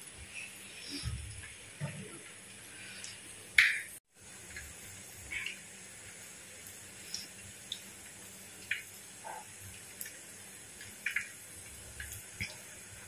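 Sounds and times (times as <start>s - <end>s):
mustard seeds popping in oil: 8.6s - 12.8s.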